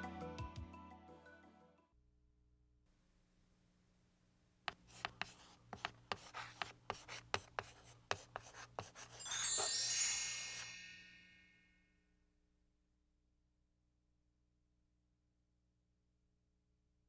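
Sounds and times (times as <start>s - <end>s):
sharp clicks and scratchy rubbing: 4.7s - 9.0s
bright shimmering chime: 9.2s - 11.7s.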